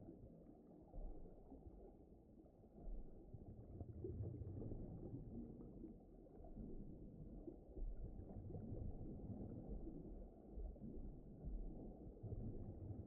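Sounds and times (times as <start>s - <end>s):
muffled ocean wash: 0.0s - 13.0s.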